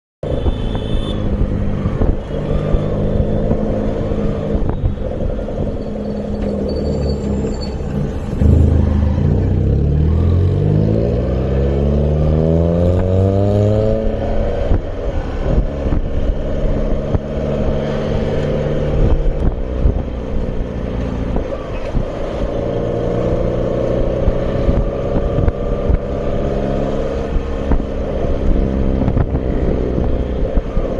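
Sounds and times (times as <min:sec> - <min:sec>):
vehicle engine revving up: 0:06.4 - 0:19.9.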